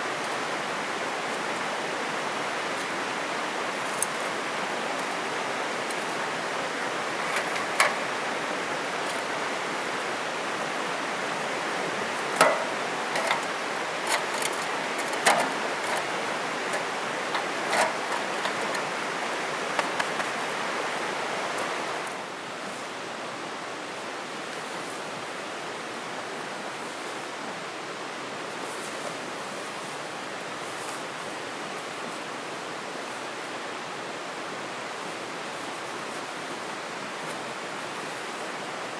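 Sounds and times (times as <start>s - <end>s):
flowing river rushing: 0.0s - 38.9s
sharp clicks and knocks: 12.3s - 13.5s, 14.1s - 18.8s.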